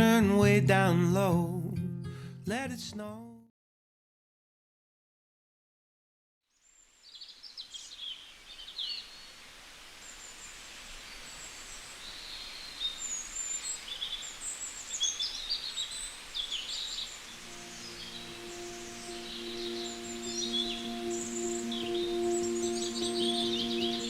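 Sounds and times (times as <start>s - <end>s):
steady background hiss: 6.7s - 24.0s
small birds chirping: 10.0s - 24.0s.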